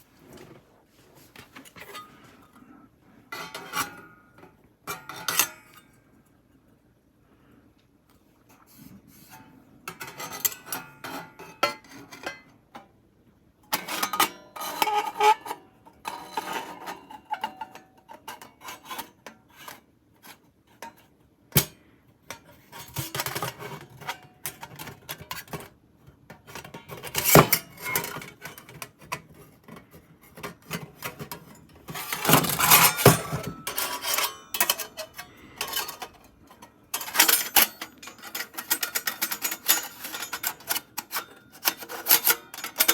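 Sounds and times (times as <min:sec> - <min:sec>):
rubbing and scraping: 0:27.1 - 0:42.9
objects clinking: 0:31.0 - 0:40.8.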